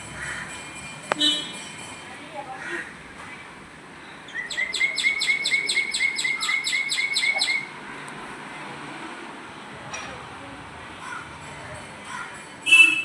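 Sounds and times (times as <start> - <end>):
bird chirping rapidly: 4.3 - 7.7.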